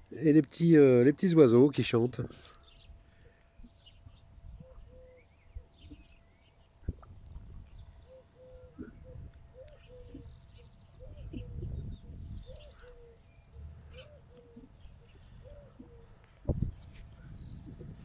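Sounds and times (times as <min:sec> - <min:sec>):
small birds chirping: 0:02.3 - 0:18.0
doves cooing: 0:04.5 - 0:06.2, 0:06.8 - 0:18.0.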